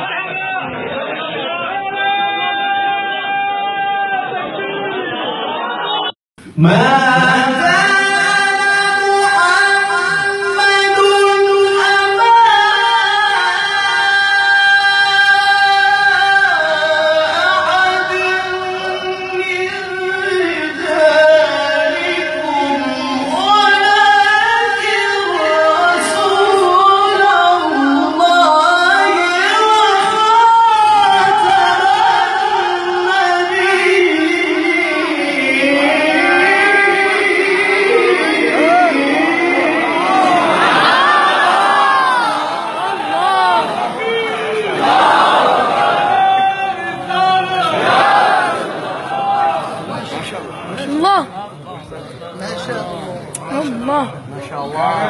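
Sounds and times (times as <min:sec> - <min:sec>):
young person reciting melodically: 0:06.4 - 0:44.4.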